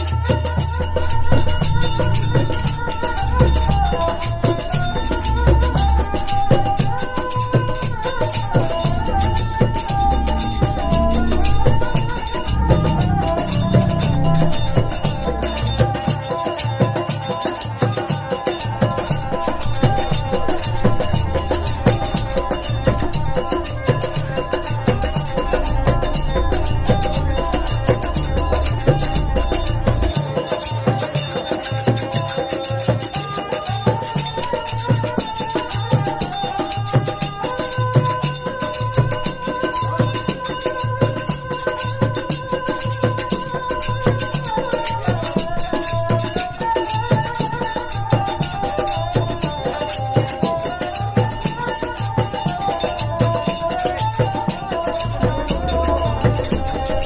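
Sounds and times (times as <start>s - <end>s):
held note: 0.0s - 16.5s, 18.6s - 30.4s
bowed string instrument: 0.0s - 57.0s
hand percussion and jingles: 0.0s - 57.0s
deep bass drone: 0.6s - 16.1s, 19.4s - 30.2s, 55.1s - 57.0s.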